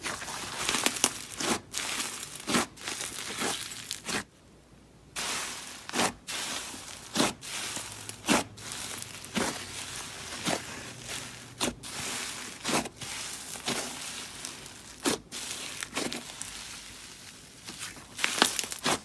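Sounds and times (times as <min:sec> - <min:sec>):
slime squishing and popping: 0:17.6 - 0:19.0.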